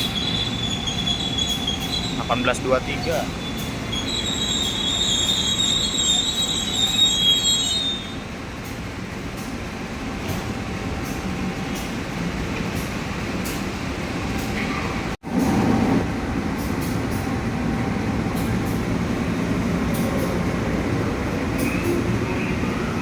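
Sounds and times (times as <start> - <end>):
train wheels squealing: 0.0 - 8.8, 21.3 - 23.0
train rumble: 0.0 - 23.0.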